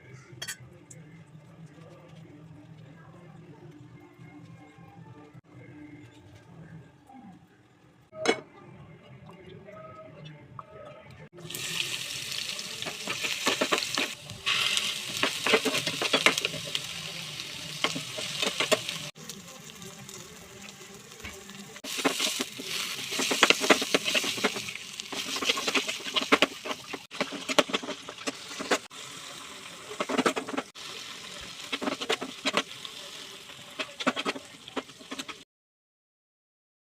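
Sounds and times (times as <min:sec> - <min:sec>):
steady cooking hiss: 0:11.4 - 0:35.4.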